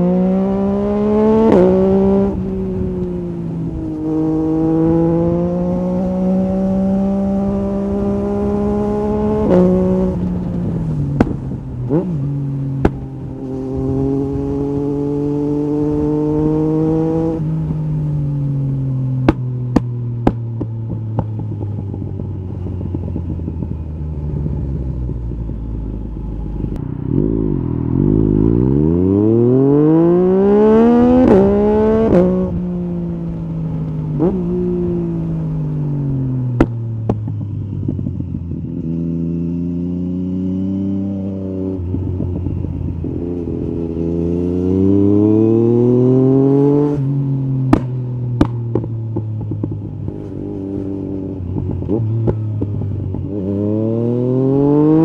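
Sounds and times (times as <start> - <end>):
motorcycle engine revving: 0.0 - 55.0
exhaust pops: 11.1 - 11.6, 47.7 - 50.3.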